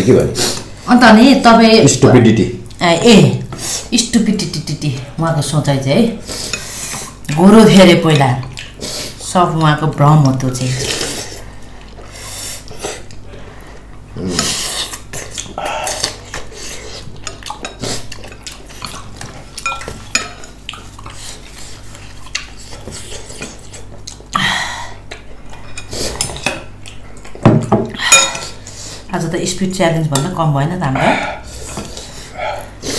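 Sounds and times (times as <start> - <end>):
utensils clinking on dishes: 19.6 - 20.6, 27.8 - 28.6.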